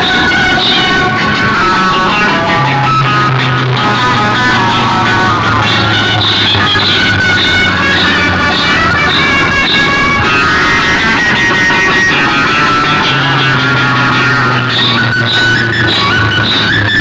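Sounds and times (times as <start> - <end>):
loud music with bass line: 0.0 - 17.0.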